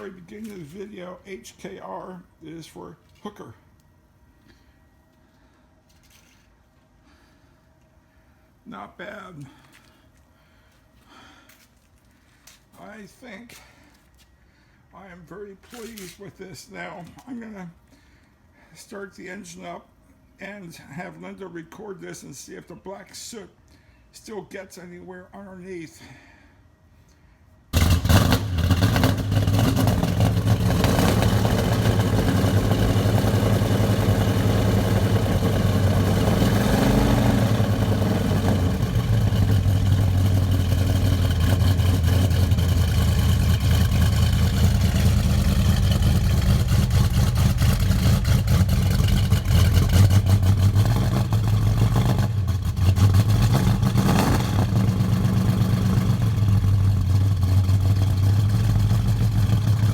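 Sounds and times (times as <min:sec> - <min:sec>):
car engine idling: 0:27.8 - 0:59.9.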